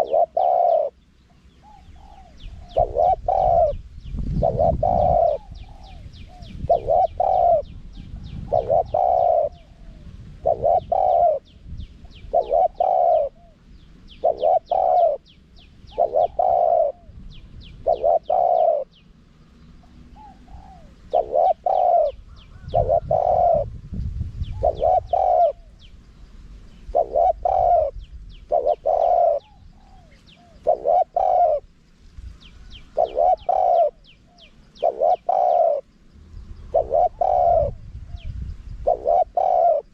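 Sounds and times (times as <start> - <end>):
dove cooing: 0.0 - 19.0, 19.7 - 25.9, 26.9 - 31.7, 32.6 - 36.0, 36.6 - 39.9
high chirping trills: 10.4 - 23.7, 32.4 - 39.9.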